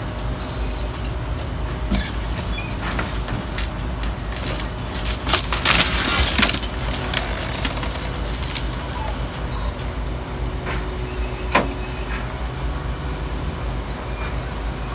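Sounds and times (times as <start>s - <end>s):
garbage truck engine running: 0.0s - 14.9s
knocks and clatter: 1.7s - 9.0s.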